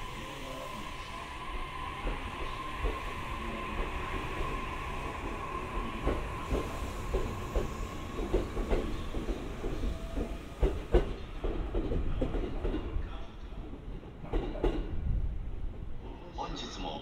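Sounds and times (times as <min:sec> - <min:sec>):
train wheels clacking over rail joints: 0:06.0 - 0:13.0.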